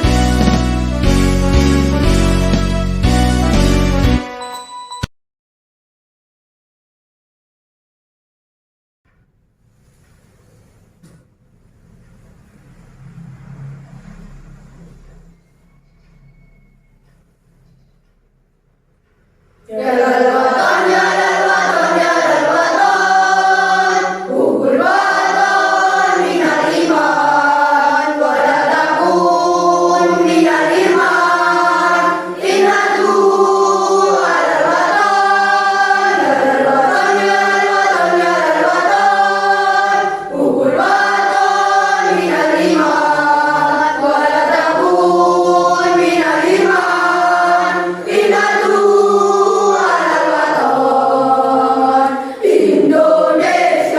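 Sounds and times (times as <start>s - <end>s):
children's choir singing: 0.0s - 2.6s, 19.6s - 53.9s.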